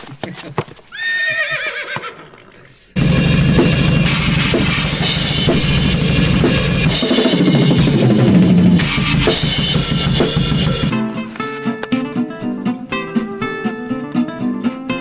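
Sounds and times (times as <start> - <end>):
drum kit beat: 3.0 - 11.0
loud band music: 3.0 - 11.0.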